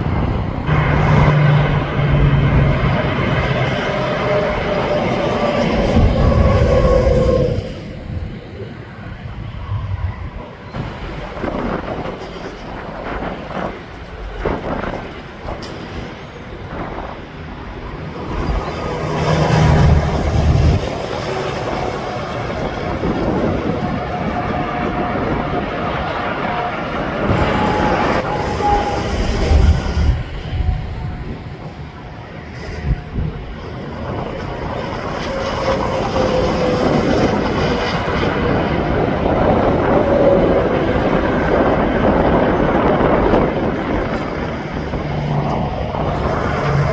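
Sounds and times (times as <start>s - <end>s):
truck passing: 0.0s - 8.6s, 17.4s - 24.5s, 25.7s - 46.9s
truck engine drone: 0.0s - 11.0s
tyre and traffic noise: 0.0s - 46.9s.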